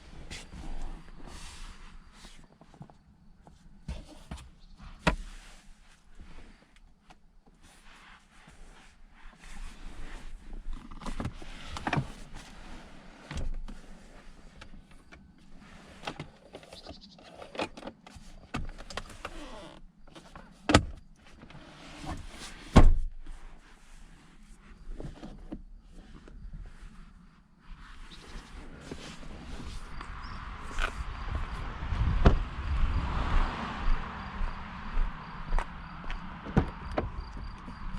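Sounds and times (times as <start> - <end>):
clicks and knocks of car cabin fittings: 20.1 - 21.0, 36.4 - 37.7.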